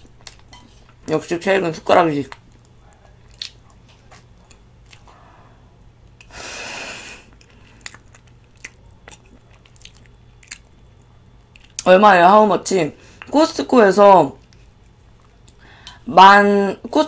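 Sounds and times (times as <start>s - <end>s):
person chewing: 0.0s - 1.0s, 2.3s - 5.2s, 7.1s - 11.9s.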